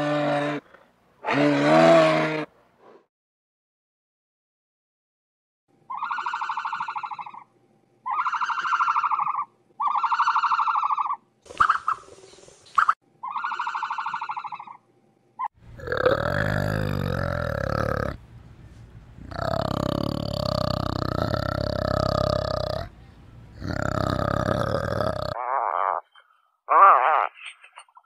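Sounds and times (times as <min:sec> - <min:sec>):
harsh buzzing animal calls: 0:05.9 - 0:12.0, 0:12.8 - 0:14.8, 0:15.4 - 0:18.2, 0:19.2 - 0:22.9, 0:23.6 - 0:27.4
deep noisy animal sound: 0:15.6 - 0:18.3, 0:19.2 - 0:26.0.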